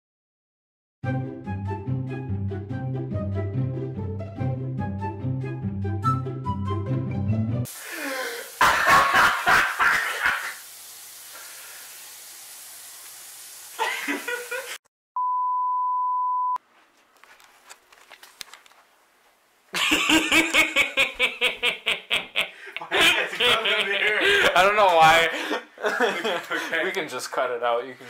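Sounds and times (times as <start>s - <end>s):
static hiss: 7.7s - 14.8s
steady high test tone beep: 15.2s - 16.6s
people talking: 22.8s - 28.0s.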